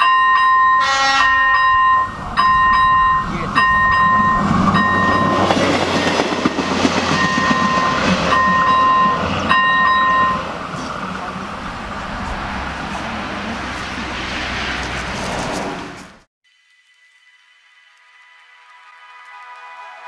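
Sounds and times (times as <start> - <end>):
electronic crossing bell: 0.0 - 10.7
train wheel clatter: 0.0 - 16.2
diesel train rumbling: 0.0 - 16.3.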